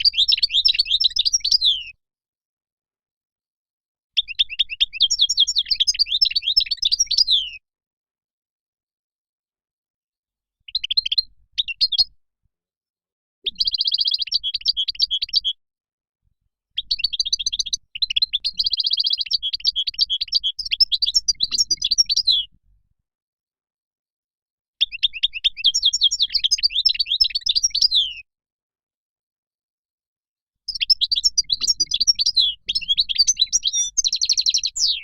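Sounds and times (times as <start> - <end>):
finch twittering and trilling: 0.0 - 1.9, 13.5 - 15.6, 16.8 - 22.5, 24.8 - 28.2, 30.7 - 35.0.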